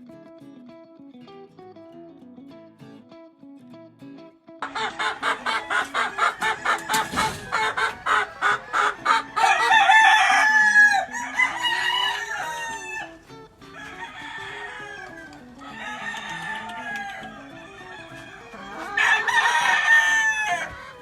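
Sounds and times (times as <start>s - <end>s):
background music: 4.6s - 21.0s
roosters crowing: 4.6s - 21.0s.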